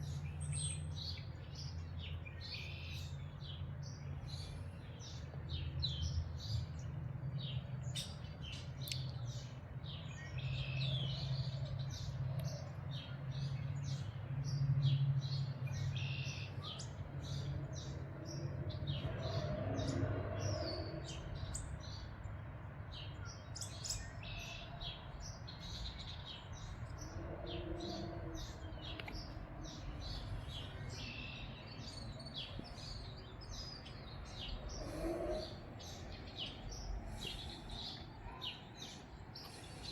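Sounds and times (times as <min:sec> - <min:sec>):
songbirds chirping: 0:00.0 - 0:39.9
low wind rumble: 0:25.5 - 0:39.9.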